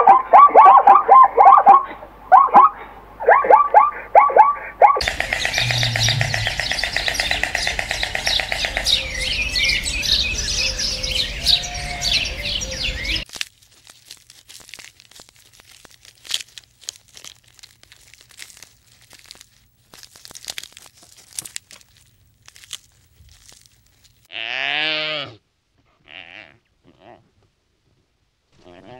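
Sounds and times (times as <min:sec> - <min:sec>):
fast pulsing bird trill: 0:00.0 - 0:13.2
small birds chirping: 0:04.8 - 0:13.3.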